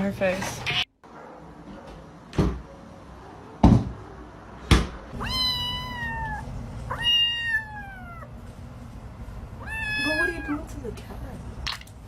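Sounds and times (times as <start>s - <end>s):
cat meowing: 5.1s - 8.3s, 9.6s - 10.7s.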